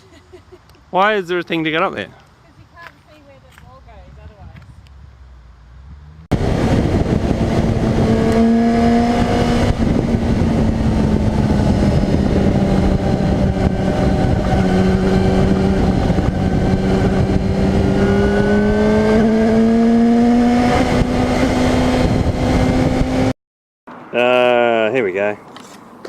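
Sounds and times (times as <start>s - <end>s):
motorcycle engine: 4.8s - 23.3s
wind rushing: 5.9s - 23.3s.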